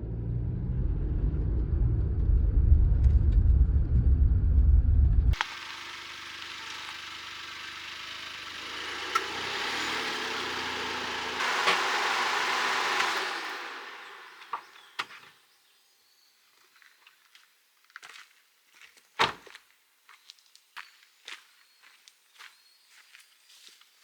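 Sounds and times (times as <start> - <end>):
car engine running: 5.4 - 15.1.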